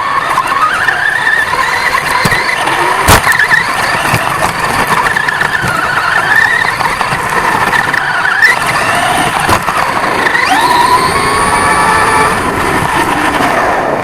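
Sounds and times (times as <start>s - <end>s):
rc truck motor whining: 0.0s - 14.0s.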